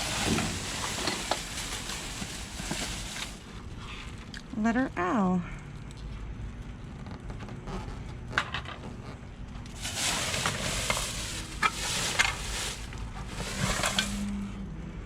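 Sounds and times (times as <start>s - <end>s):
trash rustling and crinkling: 0.0s - 4.3s, 9.6s - 14.5s.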